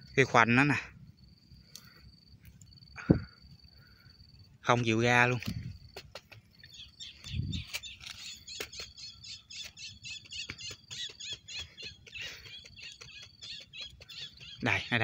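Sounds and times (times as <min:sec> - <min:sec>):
bird chirping: 0:05.6 - 0:15.0.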